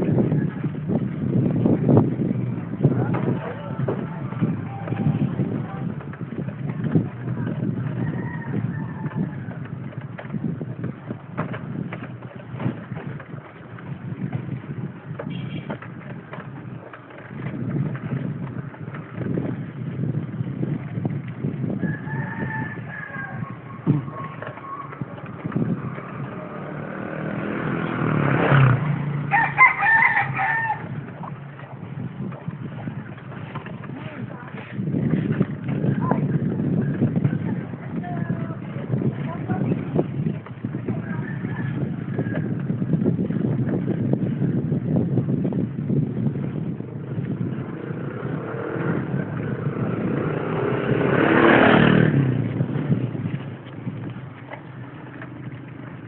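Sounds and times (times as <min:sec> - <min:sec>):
steady low rumble: 0:00.0 - 0:56.0
rooster crowing: 0:08.0 - 0:09.5, 0:21.8 - 0:24.3, 0:29.3 - 0:31.0, 0:41.0 - 0:42.4
motorcycle passing by: 0:21.0 - 0:32.1, 0:45.2 - 0:56.0.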